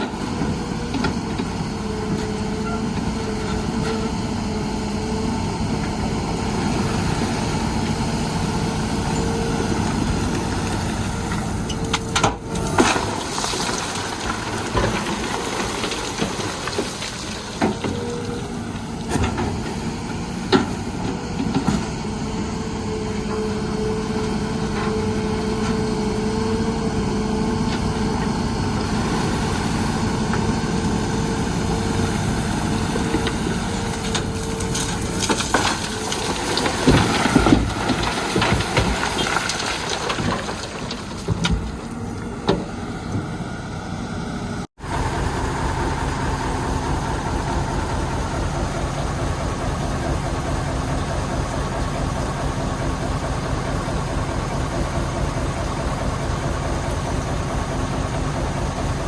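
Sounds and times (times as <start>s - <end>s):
excavator diesel engine running: 0.0s - 59.0s
clunks and knocks: 33.0s - 43.4s.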